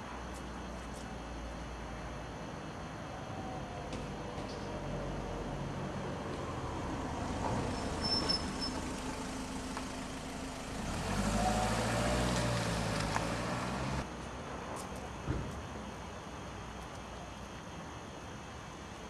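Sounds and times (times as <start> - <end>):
car engine accelerating: 6.7 - 14.0.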